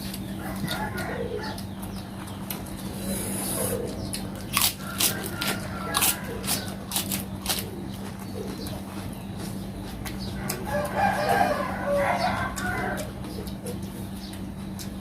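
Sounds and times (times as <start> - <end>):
shellfish shell crunching: 3.9 - 11.2.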